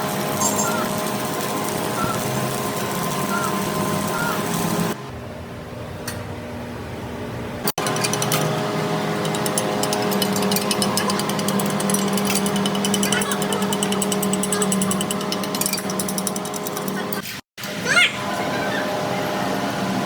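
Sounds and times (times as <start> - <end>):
machinery humming: 7.4 - 17.4
fast dense rattling: 7.8 - 17.2.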